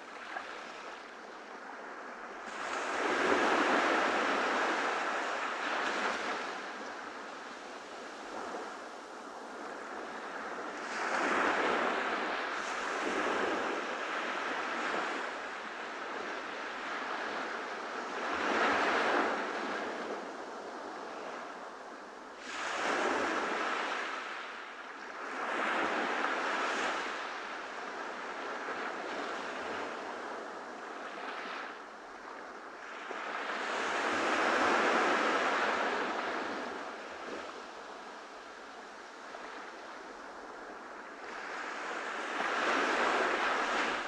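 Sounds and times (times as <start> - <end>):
ocean waves breaking: 32.9 - 44.0.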